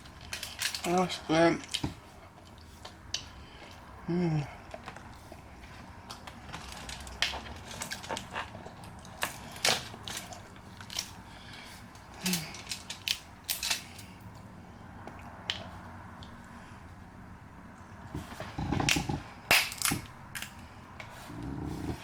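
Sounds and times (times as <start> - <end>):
shells cracking by hand: 12.2 - 14.2, 18.8 - 20.6.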